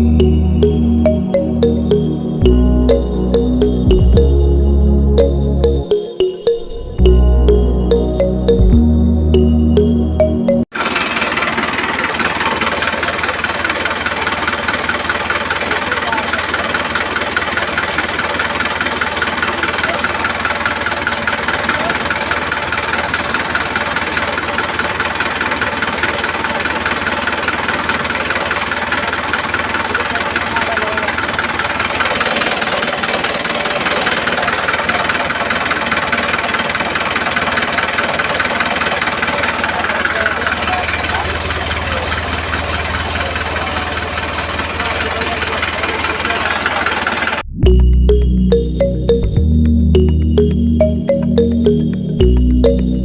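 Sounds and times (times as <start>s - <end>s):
small model engine knocking: 10.8s - 47.4s
small motor rattling tick: 10.9s - 47.4s.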